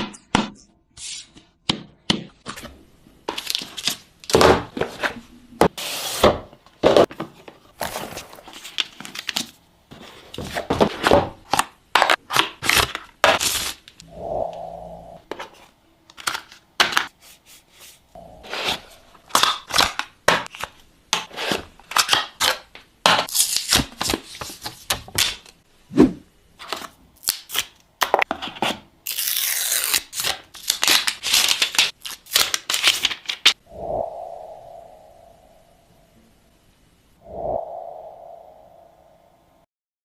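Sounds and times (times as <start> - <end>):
packaging rustling and tearing: 29.1 - 33.6.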